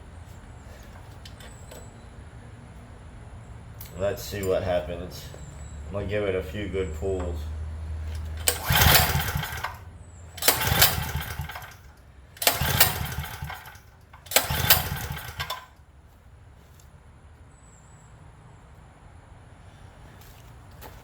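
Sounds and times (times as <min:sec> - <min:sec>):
recoil starter rope pulled: 0:08.0 - 0:15.8
small engine cranking: 0:08.1 - 0:15.8.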